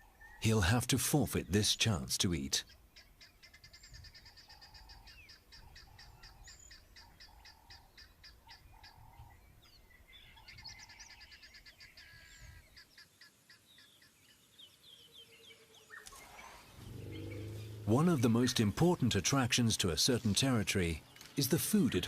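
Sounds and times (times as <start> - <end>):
rapid high bird chirp: 15.9 - 18.8.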